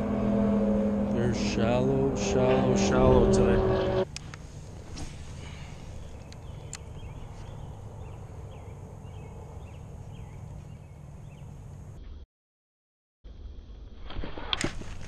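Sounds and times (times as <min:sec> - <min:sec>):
steady low rumble: 0:00.0 - 0:12.0
bird chirping: 0:05.4 - 0:11.6.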